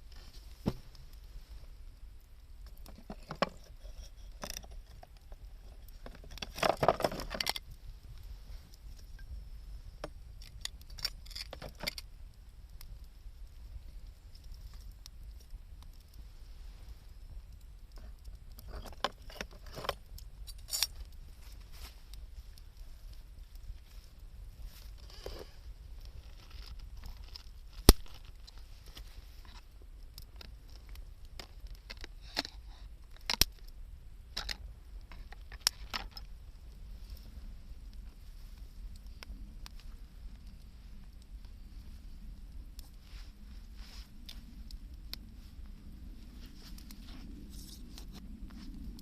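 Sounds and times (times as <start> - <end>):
bonfire crackling and popping: 0.0 - 49.0
loud sharp fire snaps: 26.2 - 29.0, 33.2 - 34.7.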